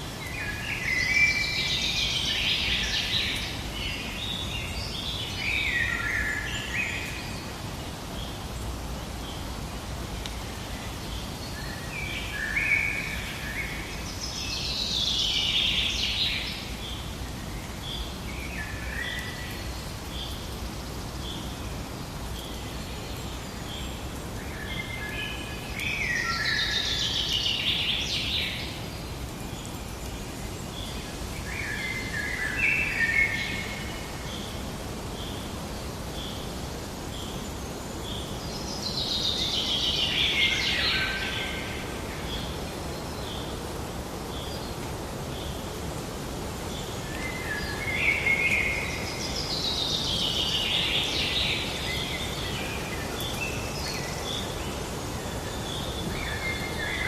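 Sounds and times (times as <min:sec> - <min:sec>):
low outdoor background noise: 0:00.0 - 0:57.0
birds singing: 0:22.3 - 0:57.0.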